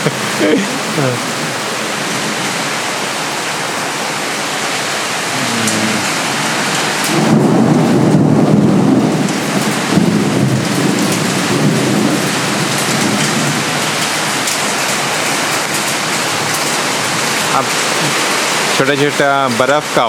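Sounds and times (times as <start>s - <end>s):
heavy rain pouring: 0.0s - 20.0s
thunder rumbling low: 6.0s - 14.7s.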